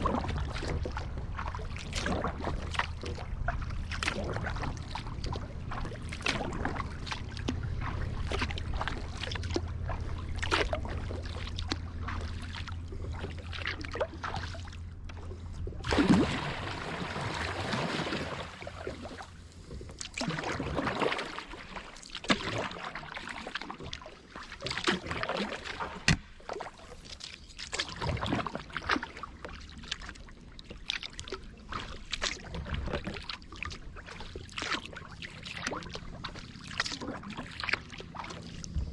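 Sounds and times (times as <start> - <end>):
wash of water: 0.0 - 27.0
kayak paddle in water: 0.0 - 38.9
water drips and splashes: 0.0 - 38.9.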